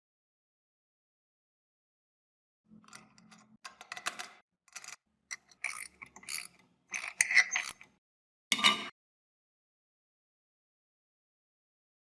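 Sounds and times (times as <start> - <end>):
metal scale mechanism clicking and rattling: 2.7 - 8.9.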